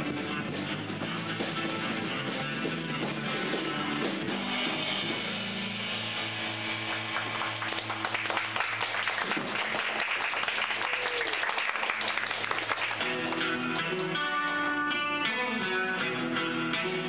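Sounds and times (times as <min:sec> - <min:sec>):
acoustic guitar: 0:00.0 - 0:09.8, 0:12.5 - 0:17.0
audience clapping: 0:06.4 - 0:14.0.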